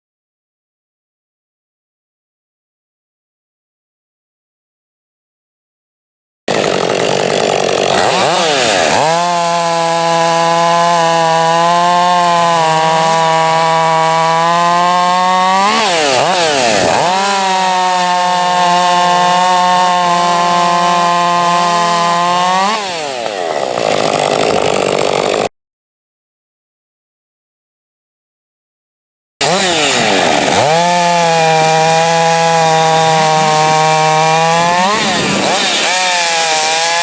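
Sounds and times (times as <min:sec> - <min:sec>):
chainsaw running: 0:06.5 - 0:25.5, 0:29.4 - 0:37.0.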